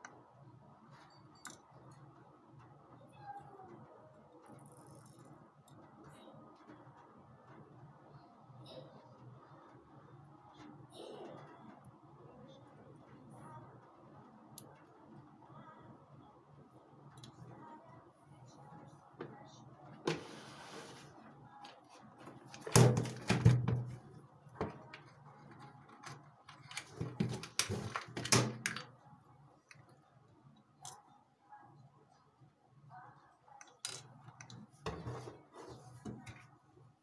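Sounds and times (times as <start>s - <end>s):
tools clicking on workbench: 24.6s - 28.9s.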